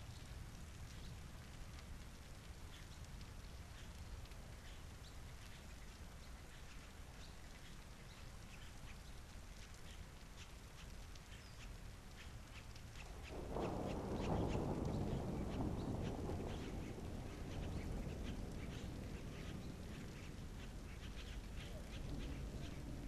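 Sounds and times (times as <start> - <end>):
light rain falling: 0.0 - 23.0.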